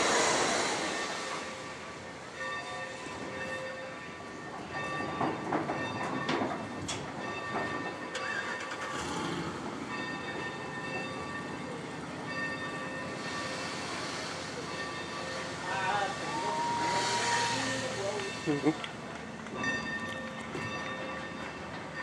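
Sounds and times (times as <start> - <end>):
train wheels clicking over rail joints: 4.5 - 22.0.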